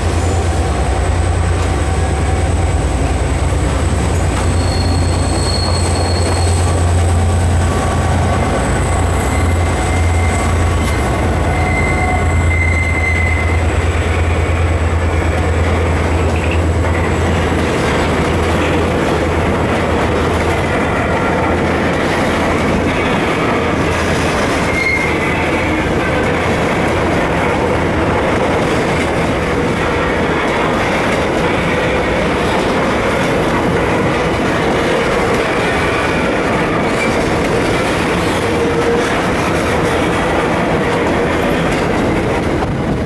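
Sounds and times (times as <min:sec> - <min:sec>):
train wheels rumbling on rails: 0:00.0 - 0:43.0
wheel squeals: 0:04.0 - 0:14.5, 0:24.5 - 0:25.6.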